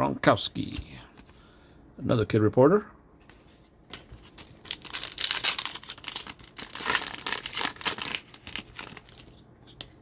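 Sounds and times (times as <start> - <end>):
plastic wrapper tearing and crinkling: 4.1 - 9.4.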